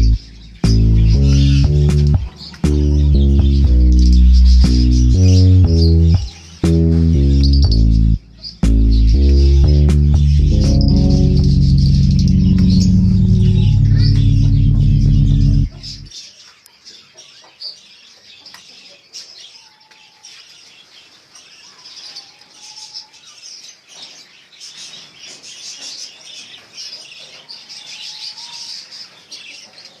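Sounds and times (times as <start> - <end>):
low whistled notes: 0.0 - 16.1
small birds chirping and twittering: 0.0 - 30.0.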